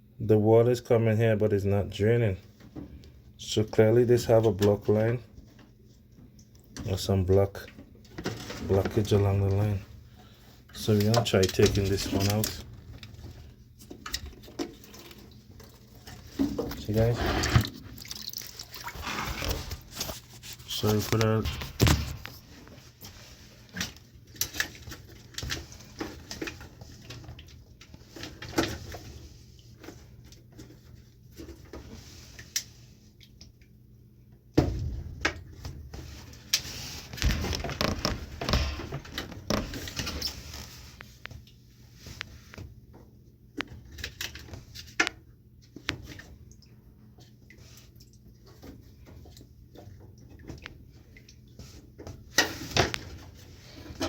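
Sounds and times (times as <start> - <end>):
plastic pipe handling clicks and rattles: 10.7 - 17.0, 36.5 - 41.6.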